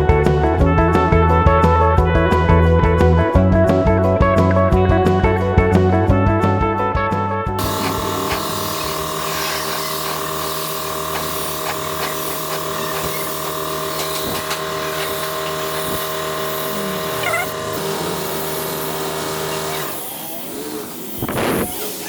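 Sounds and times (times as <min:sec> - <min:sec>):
power tool motor running: 0:07.6 - 0:22.0.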